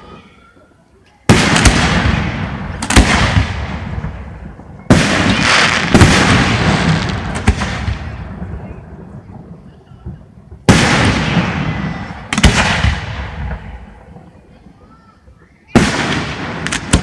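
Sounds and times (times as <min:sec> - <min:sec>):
fireworks booming: 0:01.3 - 0:17.0
sharp fireworks bangs: 0:01.3 - 0:17.0.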